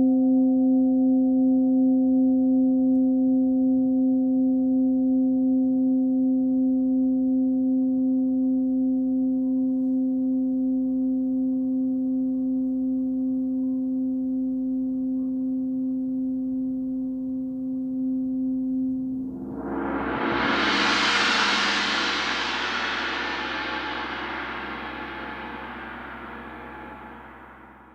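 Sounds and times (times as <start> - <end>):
singing bowl tone: 19.3 - 27.9.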